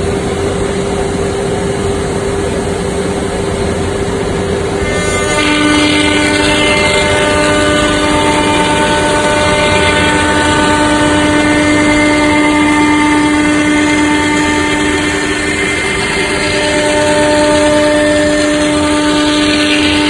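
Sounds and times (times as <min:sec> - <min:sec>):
router spindle whining: 0:04.5 - 0:20.0.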